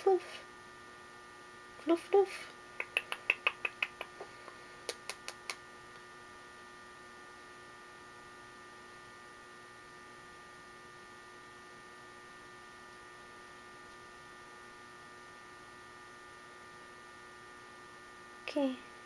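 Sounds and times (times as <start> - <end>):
steady electrical hum: 0.0 - 19.0
sharp clicks: 2.8 - 4.2.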